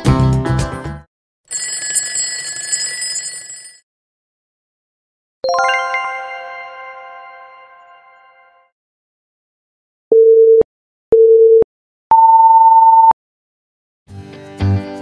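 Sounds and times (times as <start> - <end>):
upbeat background music: 5.5 - 7.8
bright chime: 5.5 - 8.5.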